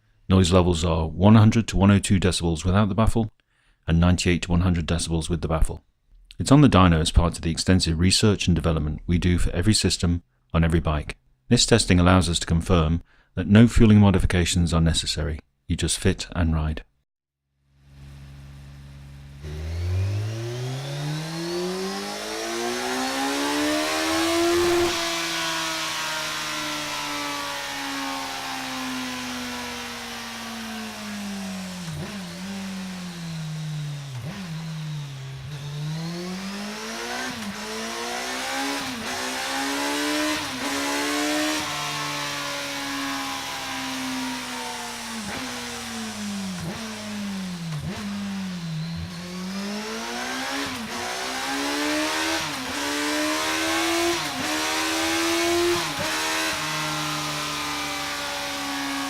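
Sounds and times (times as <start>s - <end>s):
motorcycle engine revving: 17.7s - 59.0s.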